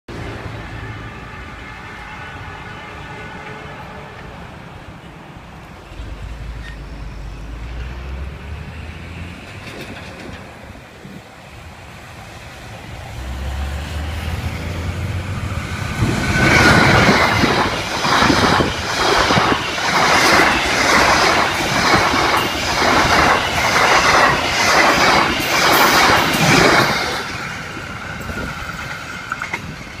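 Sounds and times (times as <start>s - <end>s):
train low rumble: 0.1s - 30.0s
wheels clattering over rail joints: 9.4s - 11.1s.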